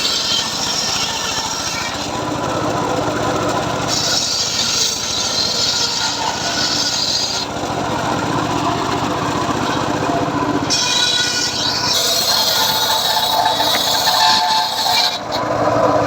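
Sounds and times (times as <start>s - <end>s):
saw blade cutting wood: 0.0s - 15.5s
circular saw running: 0.0s - 16.0s.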